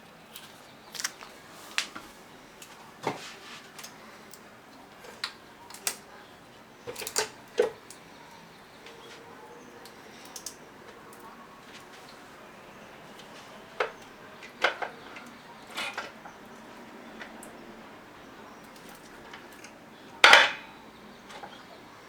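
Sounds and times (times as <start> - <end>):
faint steady background noise: 0.0 - 22.0
tools clinking on engine parts: 18.7 - 21.6.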